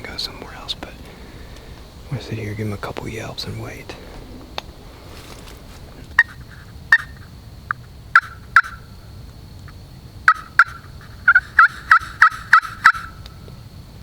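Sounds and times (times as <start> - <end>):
turkey call yelps: 6.2 - 7.3, 8.1 - 8.9, 10.2 - 13.4.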